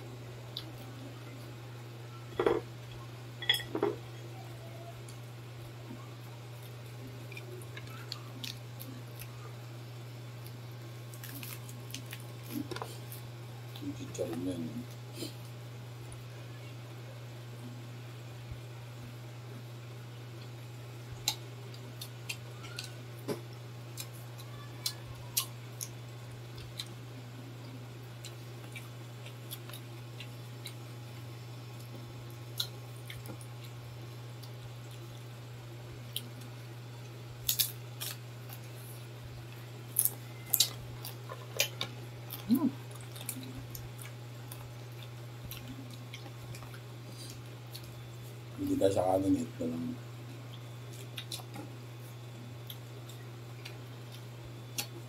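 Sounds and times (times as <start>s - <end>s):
crunchy chewing: 5.9s - 9.6s, 10.2s - 15.6s, 23.9s - 35.3s, 36.0s - 48.5s, 50.4s - 55.0s.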